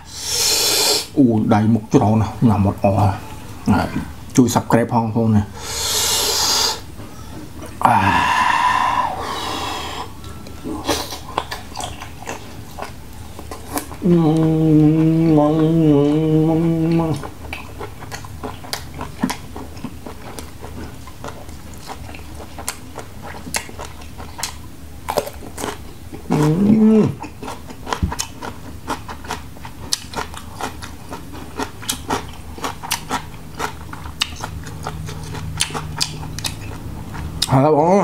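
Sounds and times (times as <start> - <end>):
person humming: 5.6 - 11.2, 14.0 - 17.3, 26.3 - 27.2
chewing with wet clicks: 11.2 - 26.6, 27.2 - 37.6.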